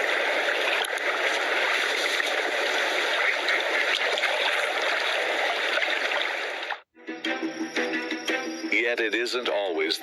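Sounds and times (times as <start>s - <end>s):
stream water babbling: 0.0s - 6.9s.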